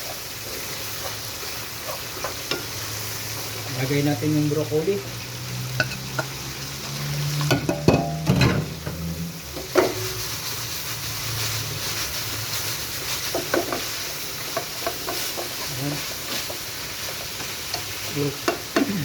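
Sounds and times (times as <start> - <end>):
chicken sizzling in oil: 0.0 - 19.0
spatula scraping a pan: 7.4 - 18.6.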